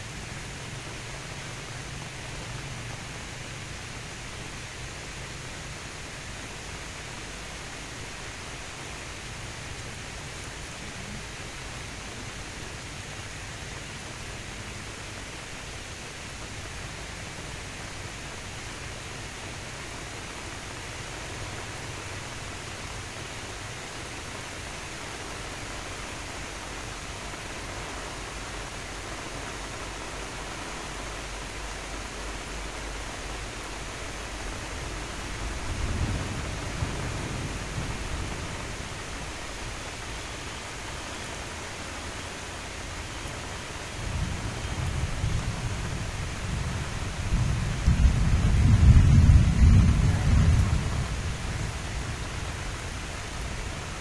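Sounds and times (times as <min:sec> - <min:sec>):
light rain falling: 0:00.0 - 0:54.0.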